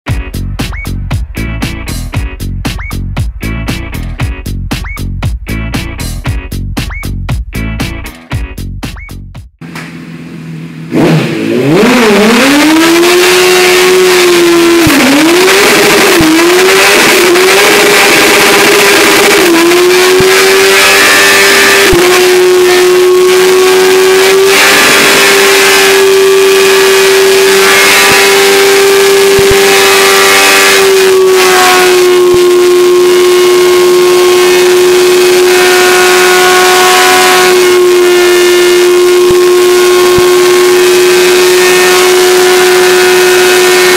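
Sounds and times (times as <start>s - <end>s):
motorcycle engine revving: 9.6s - 43.9s
rear tyre spinning: 9.6s - 43.9s.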